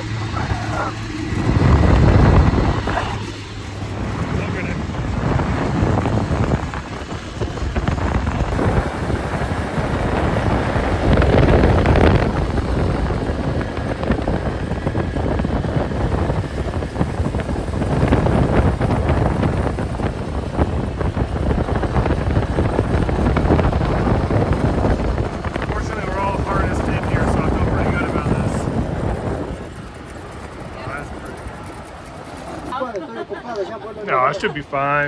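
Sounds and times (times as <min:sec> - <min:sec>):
wind rushing over microphone: 0:00.0 - 0:32.8.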